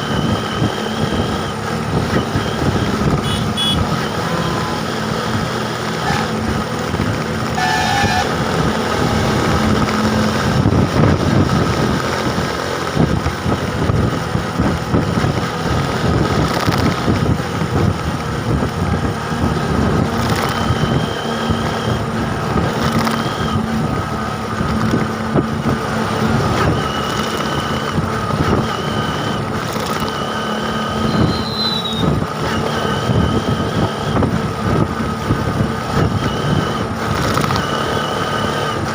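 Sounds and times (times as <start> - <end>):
engine and traffic: 0.0 - 38.9
wind on microphone: 0.0 - 38.9
short high beeps: 2.2 - 4.8.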